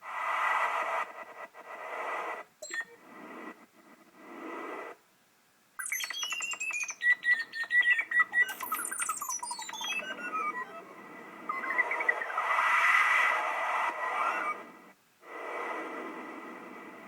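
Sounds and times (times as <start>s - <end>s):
steady high synth tone: 5.8s - 12.4s
synthesized bird chirps: 5.8s - 14.6s.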